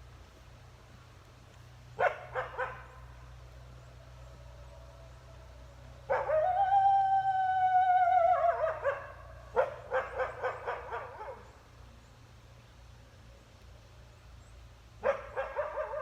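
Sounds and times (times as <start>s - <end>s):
wolf howling: 6.1s - 9.1s
wolf yipping: 8.1s - 11.4s.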